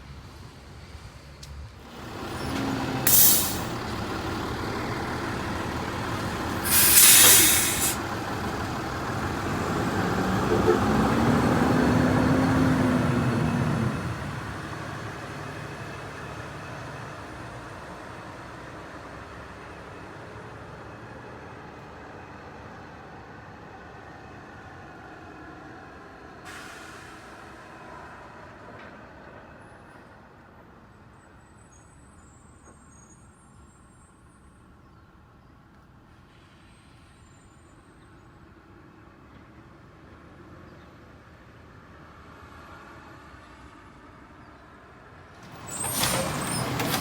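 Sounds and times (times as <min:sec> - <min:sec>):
truck engine and road noise: 0:00.0 - 0:47.0
air-brake hiss: 0:01.9 - 0:04.1, 0:06.5 - 0:08.1.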